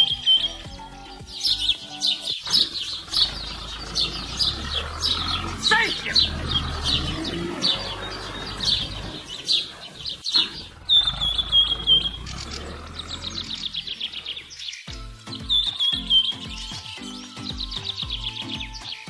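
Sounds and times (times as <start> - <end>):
music with a steady beat: 0.0 - 2.4, 14.9 - 19.0
birds chirping and trilling: 0.0 - 19.0.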